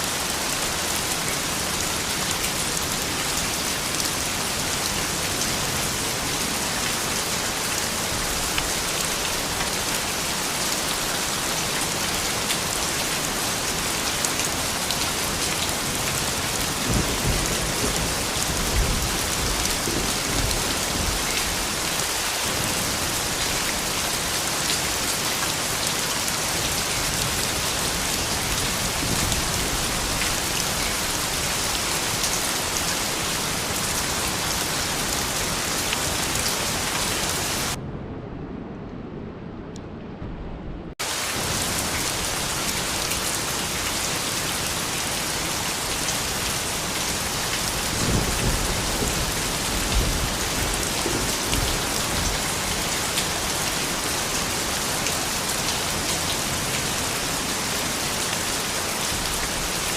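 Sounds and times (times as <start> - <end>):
rain on a hard surface: 0.0 - 37.8, 41.0 - 59.9
low rumble: 37.8 - 41.0.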